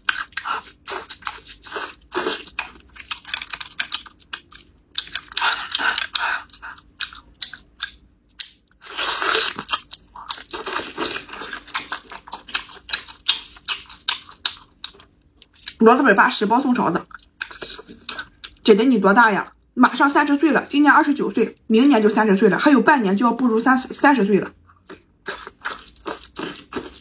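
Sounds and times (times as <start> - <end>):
wet chewing: 0.0 - 15.9, 17.0 - 18.6, 24.6 - 27.0.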